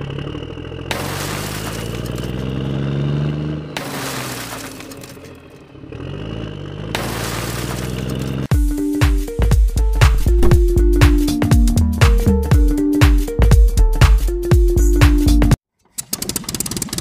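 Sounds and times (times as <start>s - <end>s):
engine revving under load: 0.0s - 8.5s
music with sharp beats: 8.5s - 15.6s.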